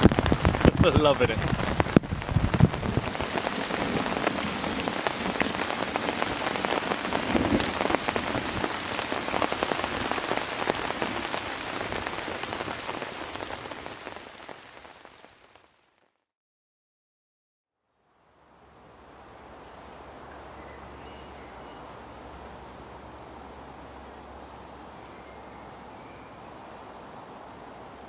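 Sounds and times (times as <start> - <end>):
heavy rain on a tarp: 0.0 - 16.2.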